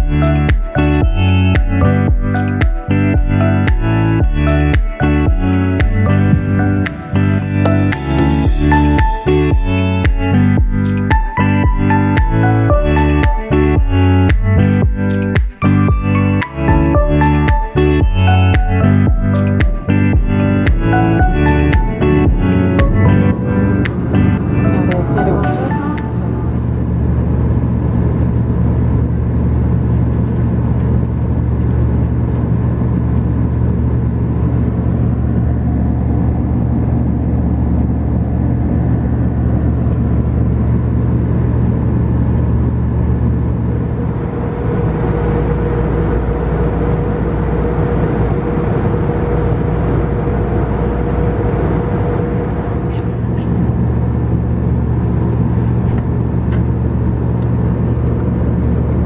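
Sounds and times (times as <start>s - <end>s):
higher steady tone: 0.0s - 27.6s
airplane cabin drone: 0.0s - 59.0s.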